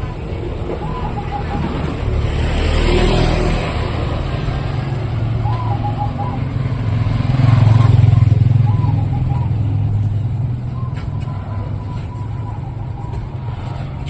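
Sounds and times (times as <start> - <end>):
vehicle engines passing: 0.0 - 14.0.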